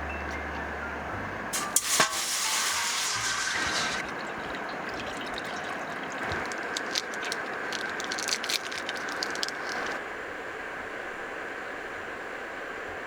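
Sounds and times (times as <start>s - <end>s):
wood fire crackling: 1.6s - 10.0s.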